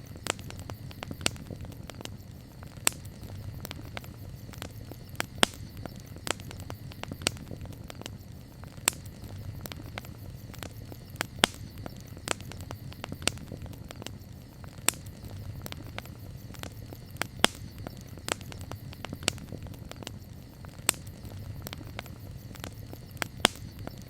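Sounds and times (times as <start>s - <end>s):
campfire crackling and popping: 0.0s - 24.0s
low steady fire rumble: 0.0s - 24.0s.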